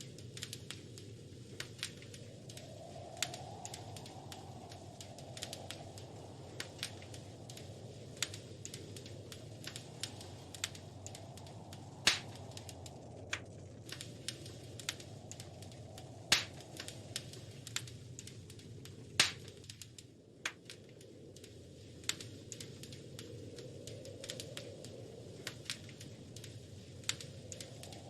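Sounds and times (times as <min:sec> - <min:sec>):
low rushing noise of fire: 0:00.0 - 0:28.0
wood fire crackling: 0:00.0 - 0:28.0
loud fire pops: 0:00.1 - 0:20.8.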